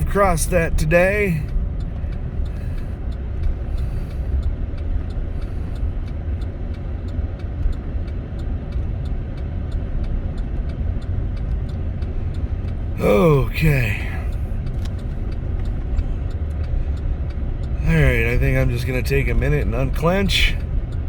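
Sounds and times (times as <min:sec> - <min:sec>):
vehicle driving on snowy road: 0:00.0 - 0:21.0.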